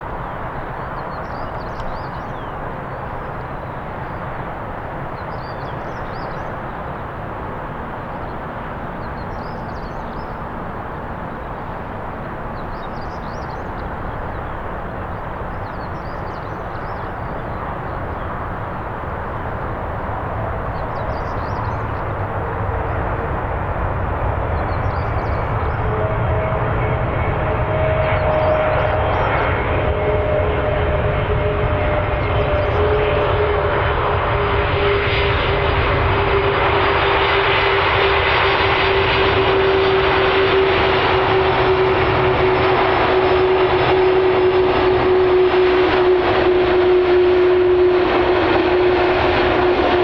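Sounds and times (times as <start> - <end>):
jet engine rushing: 0.0 - 50.0.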